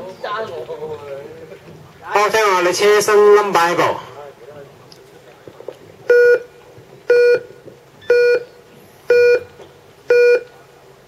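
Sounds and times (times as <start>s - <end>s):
short electronic beeps: 6.1s - 6.5s, 7.1s - 10.5s.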